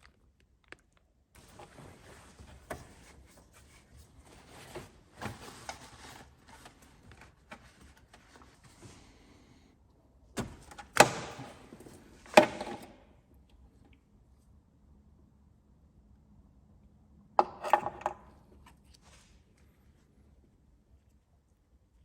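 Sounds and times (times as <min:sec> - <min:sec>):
rustling handling noise: 0:01.4 - 0:09.4.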